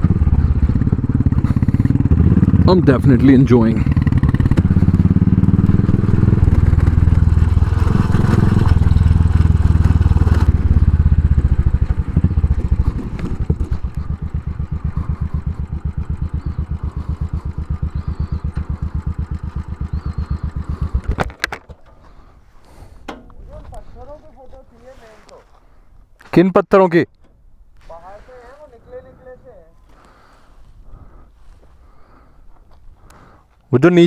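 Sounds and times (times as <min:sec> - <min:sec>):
motorcycle engine running: 0:00.0 - 0:25.5
motorcycle idle thump: 0:03.8 - 0:07.7, 0:08.4 - 0:23.8.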